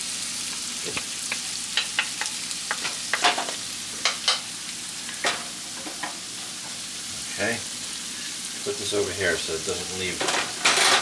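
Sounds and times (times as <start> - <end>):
garlic sizzling in a pan: 0.0 - 11.0
utensil scraping a pan: 10.2 - 11.0.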